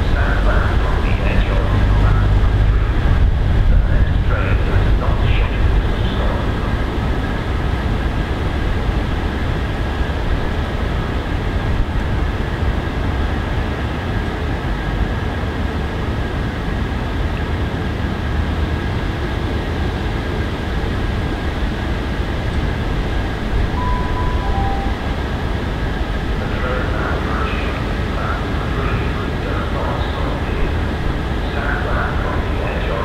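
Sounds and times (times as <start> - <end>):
trains rumbling: 0.0 - 33.0
two-note train horn: 23.7 - 25.7.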